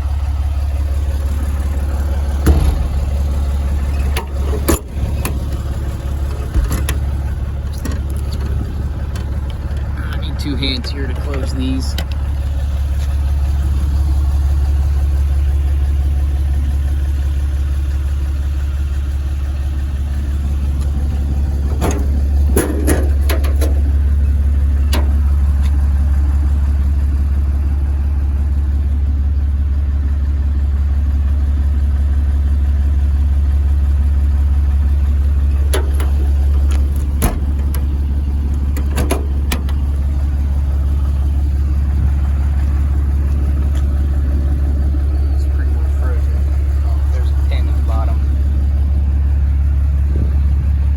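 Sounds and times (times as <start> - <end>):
engine idling: 0.0 - 50.9
sharp clicks and knocks: 1.3 - 13.2, 20.7 - 24.2, 24.8 - 25.8, 35.5 - 44.3.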